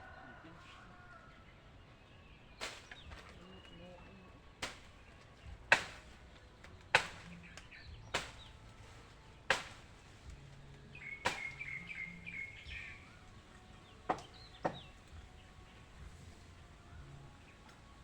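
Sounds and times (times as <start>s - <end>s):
bird chirping: 6.7s - 9.0s, 10.8s - 17.8s.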